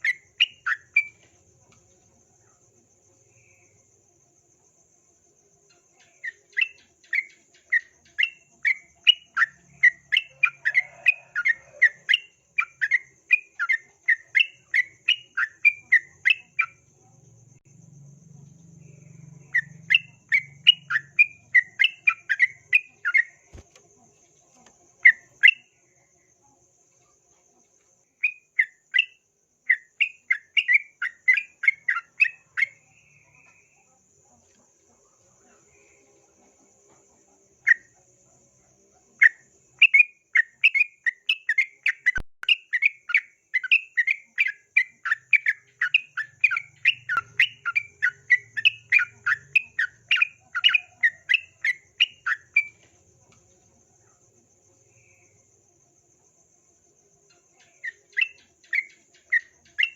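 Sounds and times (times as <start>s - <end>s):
bulbul singing: 0.0s - 1.8s, 5.7s - 16.9s, 18.6s - 26.2s, 28.1s - 33.9s, 39.2s - 53.4s, 57.3s - 59.9s
faint high insect tone: 0.0s - 59.9s.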